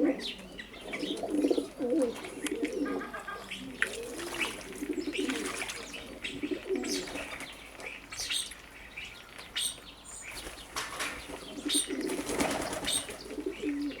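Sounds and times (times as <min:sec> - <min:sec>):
doves cooing: 0:00.0 - 0:07.7, 0:10.4 - 0:14.0
birds chirping: 0:00.0 - 0:14.0
wings flapping: 0:10.3 - 0:13.2.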